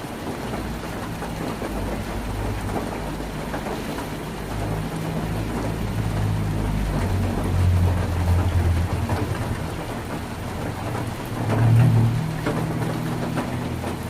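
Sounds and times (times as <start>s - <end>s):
heavy rain on a tin roof: 0.0s - 14.0s
low rumble: 4.9s - 14.0s.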